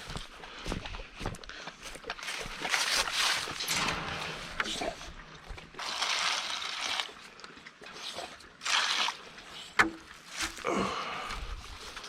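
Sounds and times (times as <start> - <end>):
water splashing: 3.2 - 10.6.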